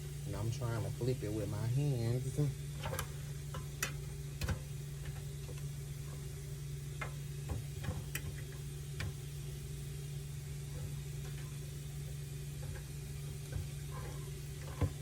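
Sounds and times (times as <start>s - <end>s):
air fryer low hum: 0.0s - 15.0s.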